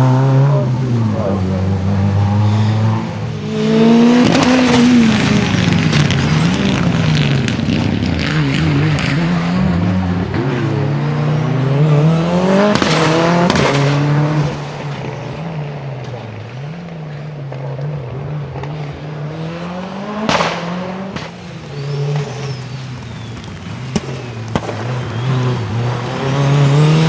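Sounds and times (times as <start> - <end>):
exhaust cracks: 0.0 - 27.0
rally car engine revving: 0.0 - 27.0.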